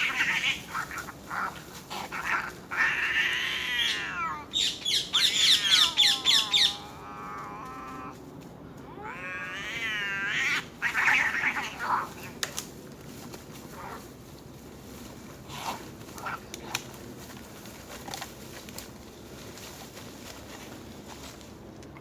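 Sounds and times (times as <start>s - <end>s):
animal drawn-out call: 5.1s - 8.2s.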